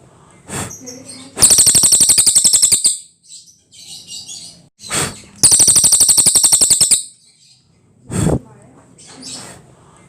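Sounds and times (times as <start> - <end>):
bird trilling clicking notes: 1.4 - 3.0, 5.4 - 7.2.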